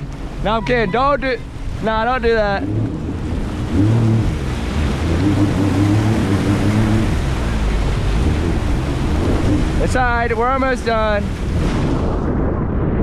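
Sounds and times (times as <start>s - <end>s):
jet ski engine running: 0.0s - 12.5s
wind and water rush: 0.0s - 13.0s.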